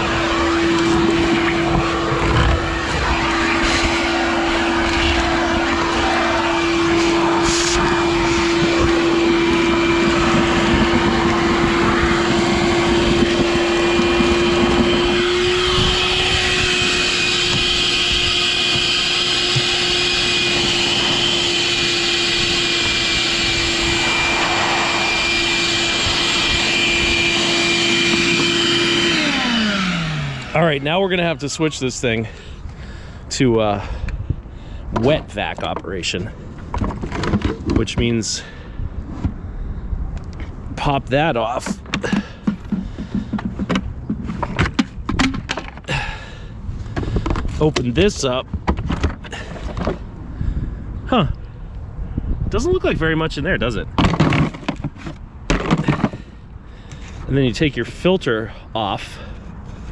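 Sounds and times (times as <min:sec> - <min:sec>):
vacuum suction: 0:00.0 - 0:30.9
shop vacuum motor hum: 0:00.0 - 0:31.2.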